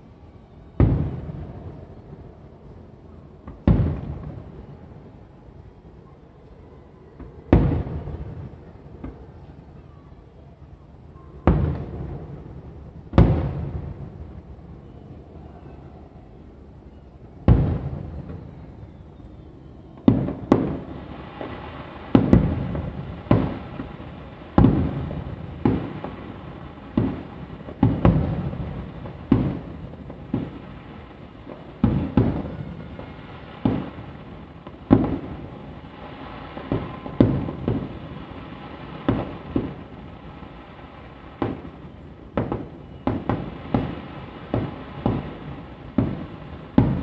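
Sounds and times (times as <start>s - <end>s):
firework shells booming: 20.1s - 30.7s, 41.4s - 47.0s.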